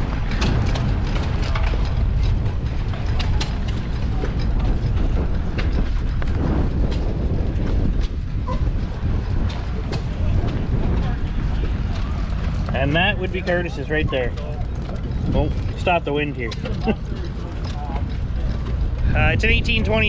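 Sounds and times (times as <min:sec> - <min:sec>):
engines clicking and knocking: 0:00.0 - 0:20.0
wind buffeting microphone: 0:00.0 - 0:20.0.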